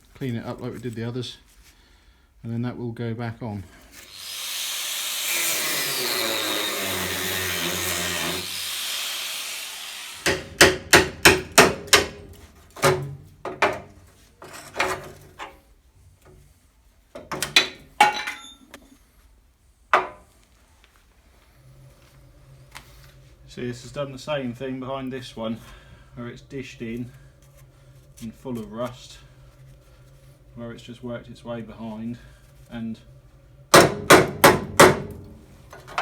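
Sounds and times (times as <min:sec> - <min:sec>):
power tool whirring: 0:04.0 - 0:10.6.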